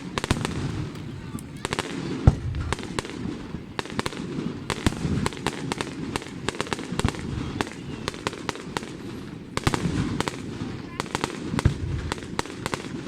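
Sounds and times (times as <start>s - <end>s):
fireworks cracking and popping: 0.0s - 13.0s.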